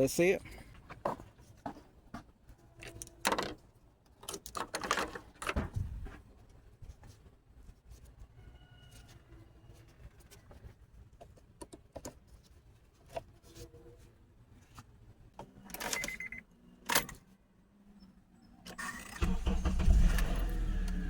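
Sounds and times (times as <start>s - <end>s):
car engine cranking and starting: 18.7s - 21.0s.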